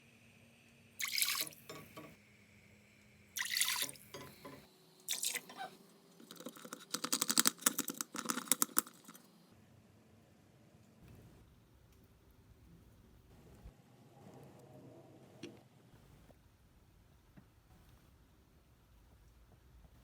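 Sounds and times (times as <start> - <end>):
water pouring and splashing: 1.0 - 2.1, 3.4 - 4.5, 5.1 - 5.6
water dripping: 1.0 - 2.2, 3.4 - 5.5.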